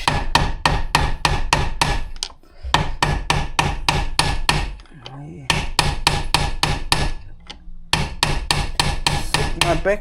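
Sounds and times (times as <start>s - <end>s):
rapid hammer blows on metal: 7.9s - 10.0s.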